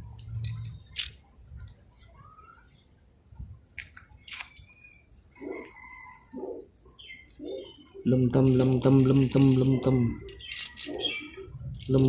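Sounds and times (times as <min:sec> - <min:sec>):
plastic toys clicking and tapping: 0:08.4 - 0:11.0.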